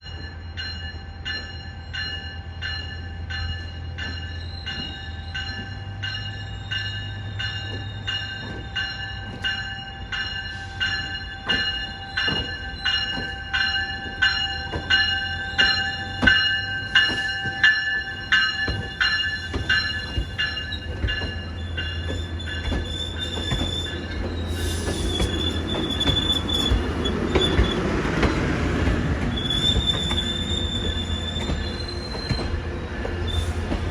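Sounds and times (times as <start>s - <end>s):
crossing bell ringing: 0.0s - 32.4s
train rumble: 0.1s - 33.9s
high wheel squeal: 18.2s - 28.5s, 29.2s - 32.6s.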